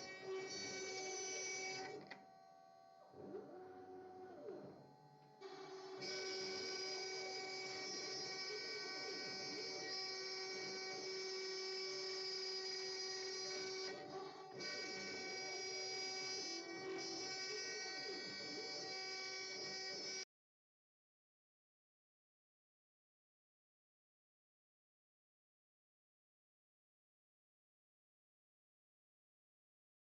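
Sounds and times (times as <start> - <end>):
router spindle high-pitched whine: 0.0 - 20.3.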